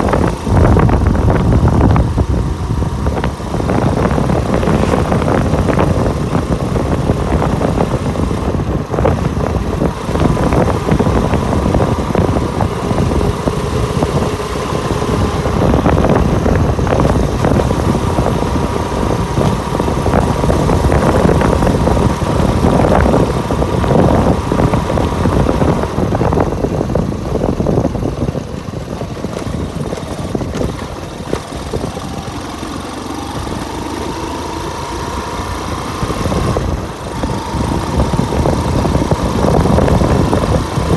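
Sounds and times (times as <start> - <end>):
motorcycle engine running: 0.0 - 40.9
wind noise: 0.0 - 40.9.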